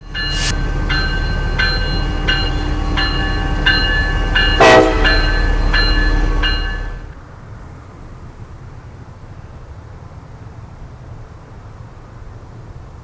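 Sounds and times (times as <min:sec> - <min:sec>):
locomotive bell ringing: 0:00.0 - 0:07.2.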